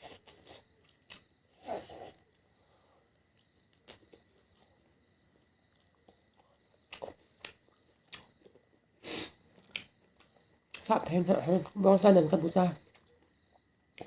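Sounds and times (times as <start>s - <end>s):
chewing smacks and clicks: 5.4s - 8.6s, 9.5s - 10.9s.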